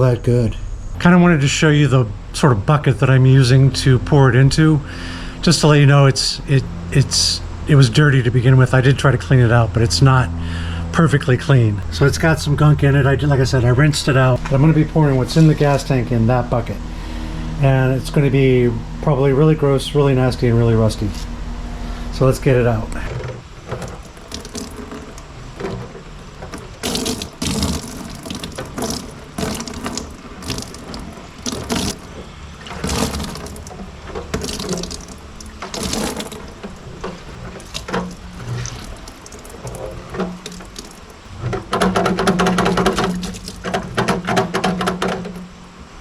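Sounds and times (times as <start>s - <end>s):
liquid pouring into a bucket: 23.0s - 25.4s, 26.0s - 44.5s.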